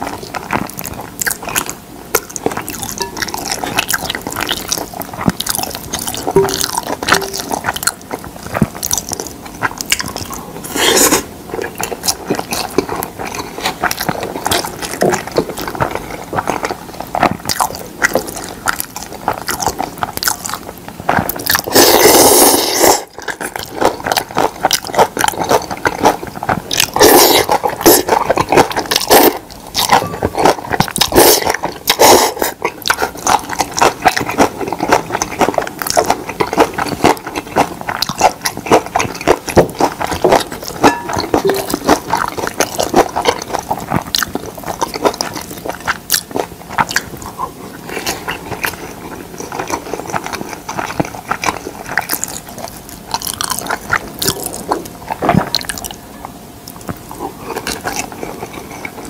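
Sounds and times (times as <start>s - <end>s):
loud slurps: 10.6s - 11.3s, 21.6s - 23.1s, 26.9s - 28.2s
chewing and wet mouth clicks: 11.1s - 56.0s.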